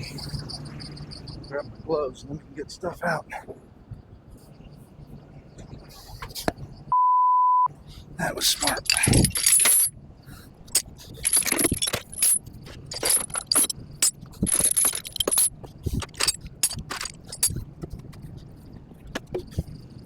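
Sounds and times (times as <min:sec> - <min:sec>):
steel chains clinking and rattling: 0:08.4 - 0:10.0, 0:10.7 - 0:17.8.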